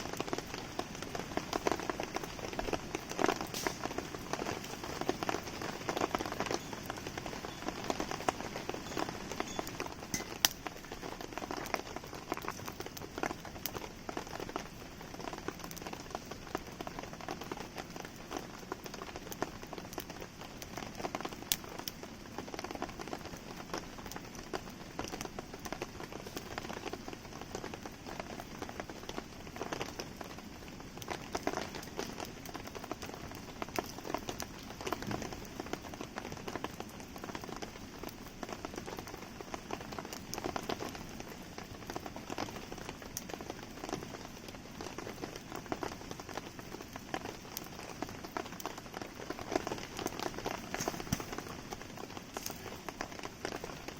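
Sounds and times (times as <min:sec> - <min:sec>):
campfire crackling: 0:00.0 - 0:53.9
steady rain falling: 0:00.0 - 0:53.9.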